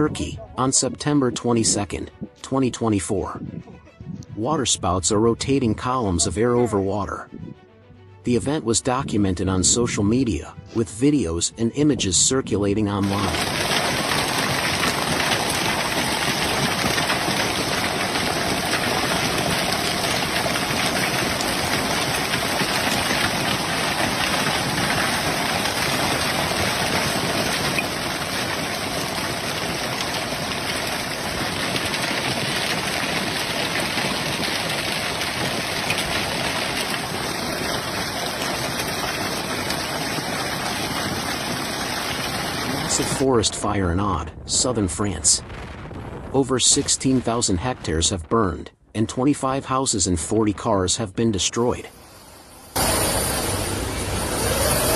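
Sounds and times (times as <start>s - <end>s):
steady rushing noise: 51.8s - 54.9s.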